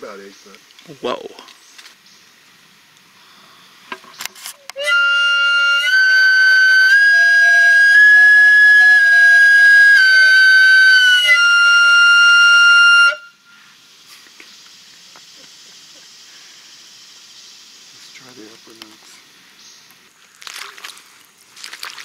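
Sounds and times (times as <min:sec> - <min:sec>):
flute-like long held notes: 0:04.7 - 0:13.7.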